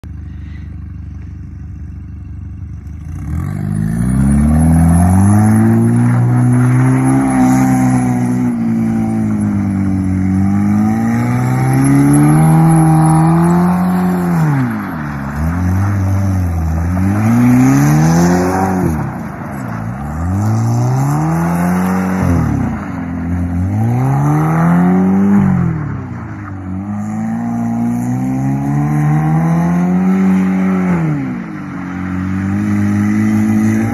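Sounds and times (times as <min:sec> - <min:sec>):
car engine revving: 0:02.6 - 0:33.9.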